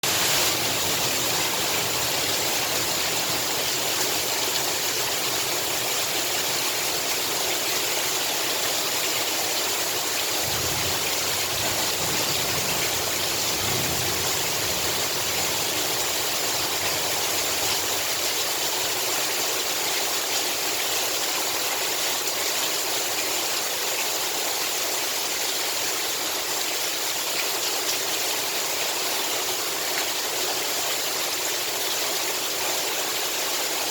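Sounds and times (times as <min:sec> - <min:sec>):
heavy rain hissing: 0:00.0 - 0:19.1.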